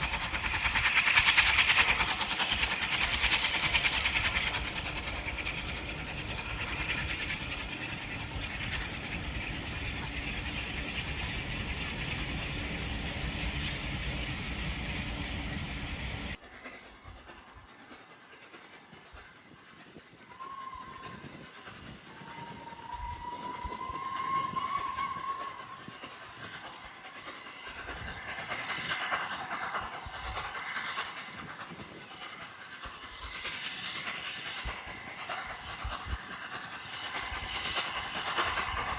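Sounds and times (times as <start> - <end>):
steam train running by: 0.0 - 38.9
steam locomotive whistle: 20.3 - 21.4, 22.2 - 25.8.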